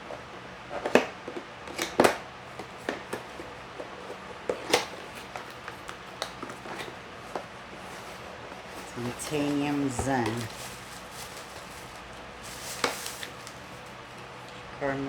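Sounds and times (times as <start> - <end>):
packaging clicks and knocks: 0.7 - 7.5.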